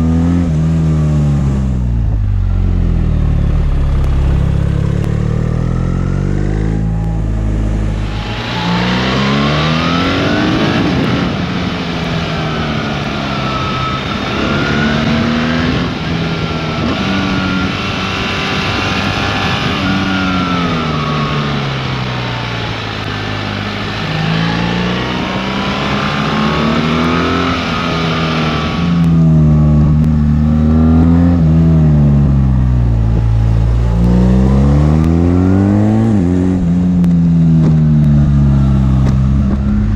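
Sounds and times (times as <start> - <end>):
motorcycle engine revving: 0.0 - 39.9
wind rush: 1.8 - 29.2.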